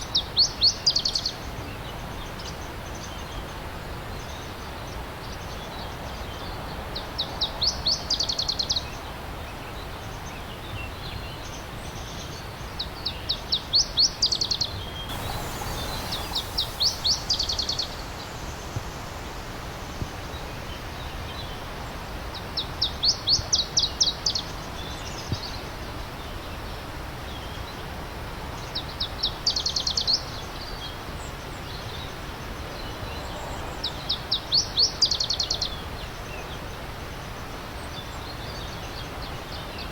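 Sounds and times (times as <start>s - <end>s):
stream rushing: 15.0s - 23.6s
songbird trilling: 15.1s - 18.0s.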